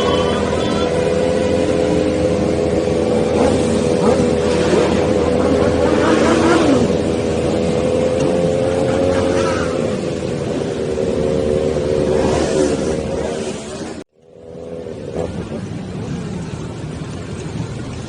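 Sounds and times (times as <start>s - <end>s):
motorcycle engine running: 0.0s - 9.2s
wind and road noise: 0.0s - 18.0s.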